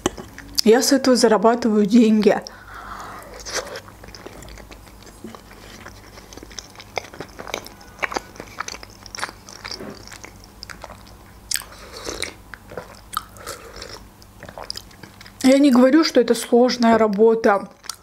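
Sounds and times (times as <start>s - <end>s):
chewing pasta: 2.3s - 15.5s, 17.1s - 18.0s.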